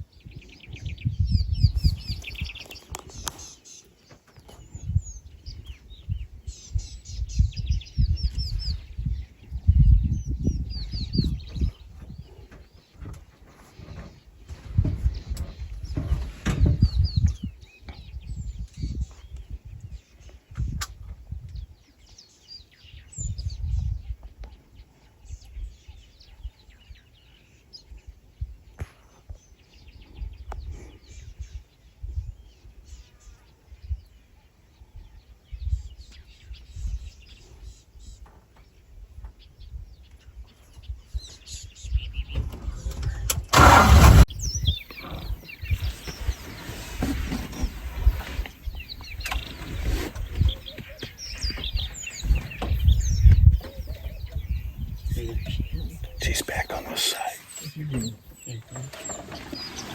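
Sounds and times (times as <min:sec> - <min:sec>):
birds chirping and calling: 0:00.0 - 0:59.9
loud burst of noise: 0:43.5 - 0:44.3
low uneven rumble: 0:43.5 - 0:47.2.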